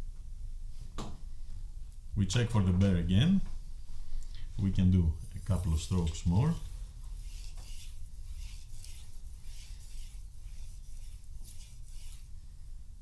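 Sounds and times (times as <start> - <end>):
knife scraping on whetstone: 5.2 - 12.3.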